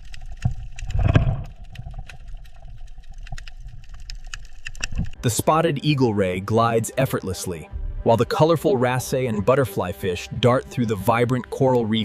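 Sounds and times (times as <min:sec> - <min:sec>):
low underwater rumble: 0:00.0 - 0:05.2
underwater crackling clicks: 0:00.0 - 0:05.2.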